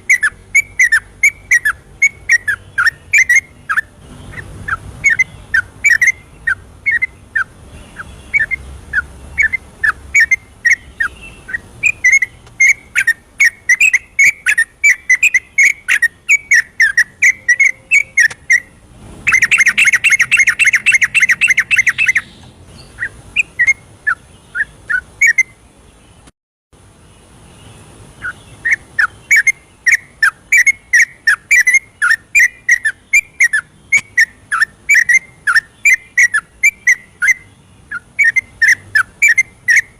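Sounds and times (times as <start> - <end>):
bulbul singing whistled phrases: 0.0 - 26.2, 27.2 - 39.9
rapid chattering trill: 11.5 - 22.4.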